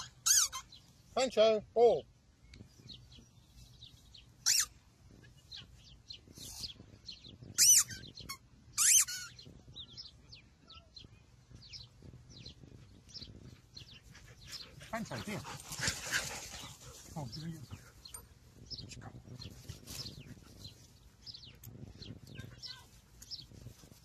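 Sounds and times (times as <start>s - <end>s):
birds chirping and singing: 0.0s - 24.0s.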